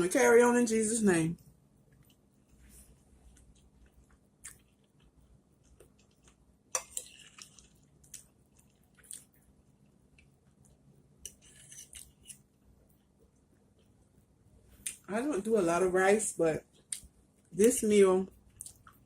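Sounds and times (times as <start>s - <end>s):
chewing and wet mouth sounds: 3.2s - 12.4s, 16.7s - 17.5s, 18.3s - 19.0s.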